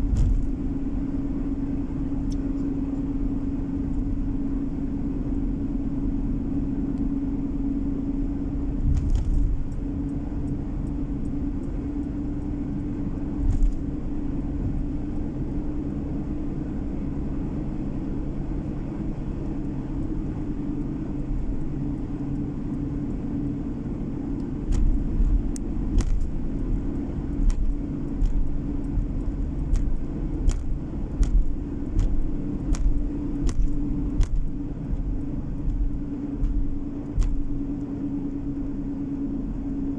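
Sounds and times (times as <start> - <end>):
sharp knocks and bumps: 0.0 - 0.7, 8.8 - 9.8, 13.4 - 13.9, 24.6 - 37.8
car road and engine rumble: 0.0 - 39.9.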